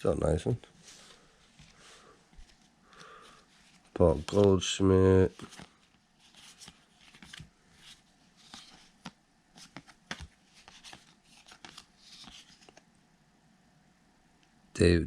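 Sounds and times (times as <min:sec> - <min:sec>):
cards flicking and sliding: 0:08.4 - 0:12.8.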